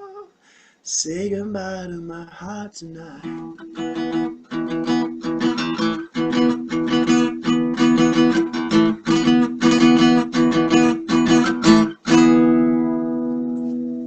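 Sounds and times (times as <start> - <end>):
acoustic guitar strumming chords: 3.2 - 14.0.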